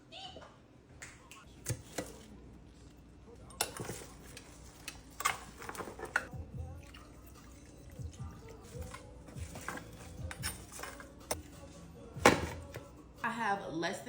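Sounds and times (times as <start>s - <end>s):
utensils clinking against a pot: 3.4s - 12.9s.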